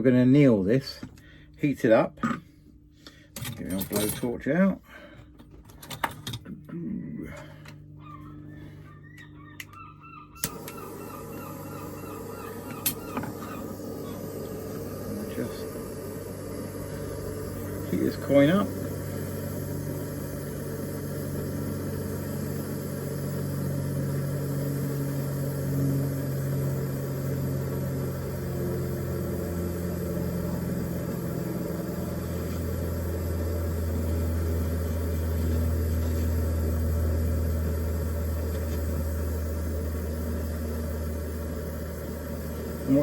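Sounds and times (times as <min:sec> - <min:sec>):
blowtorch flame rumbling: 0:10.4 - 0:43.0.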